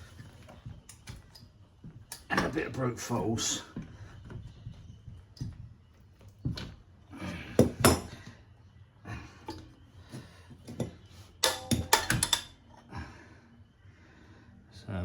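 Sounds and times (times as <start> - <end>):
spanner clanking on metal: 10.7 - 12.6.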